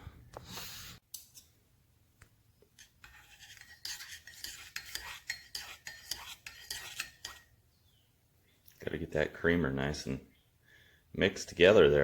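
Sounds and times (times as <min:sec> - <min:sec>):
spreader scraping putty: 0:02.8 - 0:07.5.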